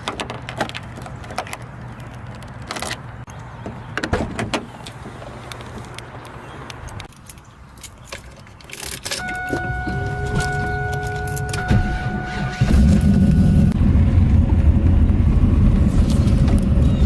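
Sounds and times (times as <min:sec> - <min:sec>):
car starter whine: 0:09.2 - 0:14.5.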